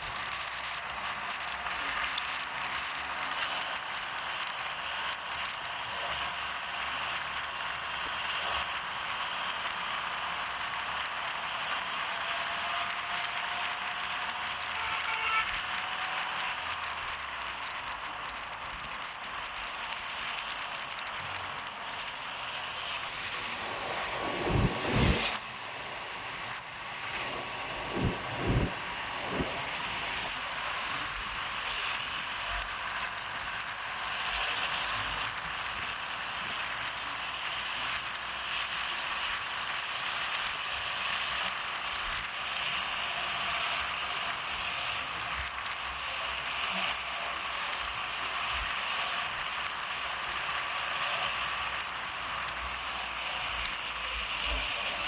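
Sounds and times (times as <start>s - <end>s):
vehicle driving on wet road: 0.0s - 55.0s
short low thumps: 27.2s - 29.9s.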